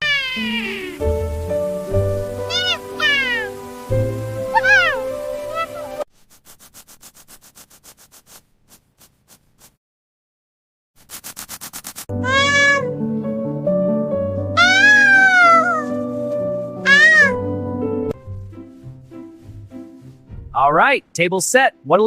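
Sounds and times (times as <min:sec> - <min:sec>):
cat meowing: 0:00.0 - 0:01.0, 0:02.5 - 0:03.6, 0:04.5 - 0:06.0, 0:12.2 - 0:13.0, 0:14.6 - 0:15.9, 0:16.8 - 0:17.4
light background music: 0:00.3 - 0:06.0, 0:12.1 - 0:22.0.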